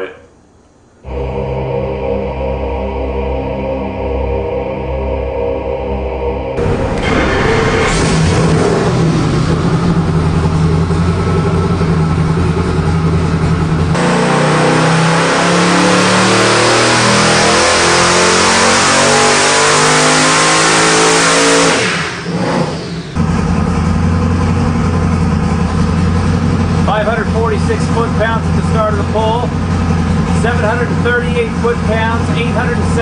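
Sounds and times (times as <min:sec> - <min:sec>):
engine idling and revving: 0:01.0 - 0:33.0.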